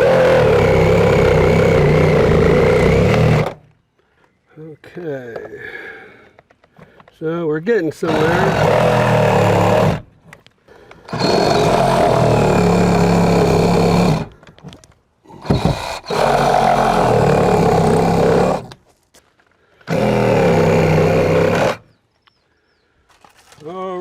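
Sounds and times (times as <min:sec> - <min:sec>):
reciprocating saw cutting: 0:00.0 - 0:03.7, 0:08.0 - 0:10.1, 0:11.1 - 0:14.4, 0:15.3 - 0:18.8, 0:19.9 - 0:21.9.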